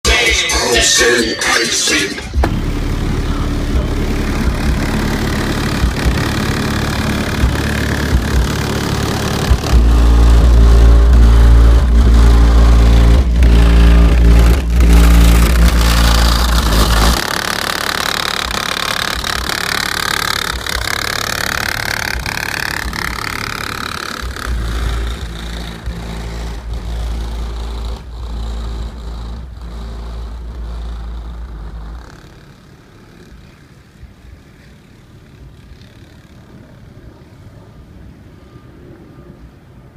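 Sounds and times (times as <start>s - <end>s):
car engine accelerating: 0.0s - 38.7s
deep bass booming: 2.2s - 32.1s.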